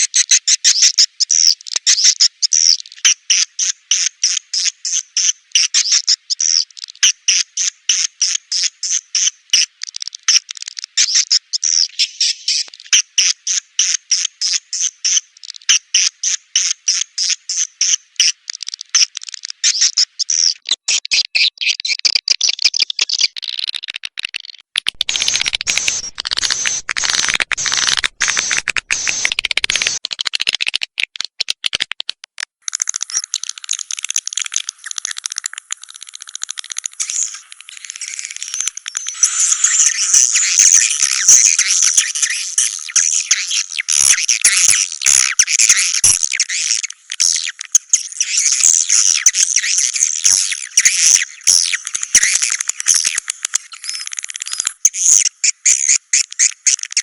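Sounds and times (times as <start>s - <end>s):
swiftlet calls chirping: 24.9s - 30.0s, 32.7s - 54.6s.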